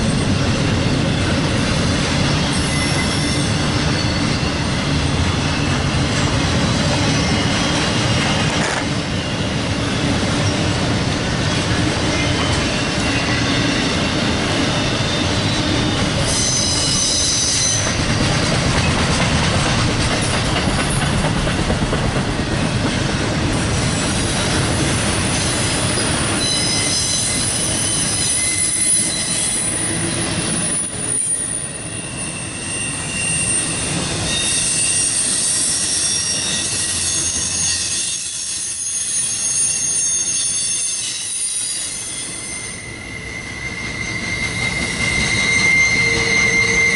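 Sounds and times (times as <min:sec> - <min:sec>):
train wheels rumbling on rail: 0:00.0 - 0:46.9
high thin wheel squeal: 0:02.4 - 0:04.8, 0:12.2 - 0:18.0, 0:23.9 - 0:46.9.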